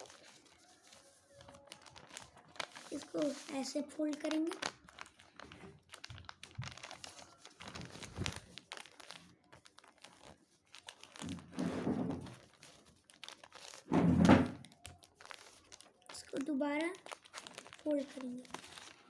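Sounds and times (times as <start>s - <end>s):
paper rubbing: 0.0s - 5.5s
paper folding and crinkling: 0.0s - 19.0s.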